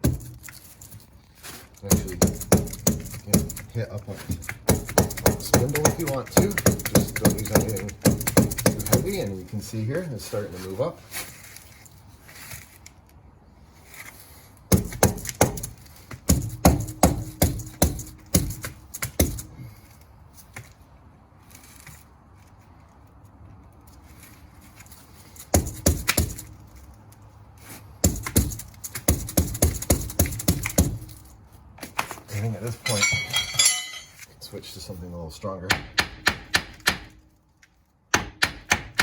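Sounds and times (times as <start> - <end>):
hammer striking metal: 32.8 - 34.2.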